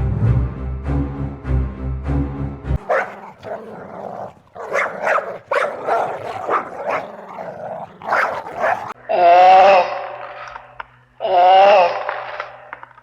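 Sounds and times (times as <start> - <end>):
dog barking: 2.8 - 9.0.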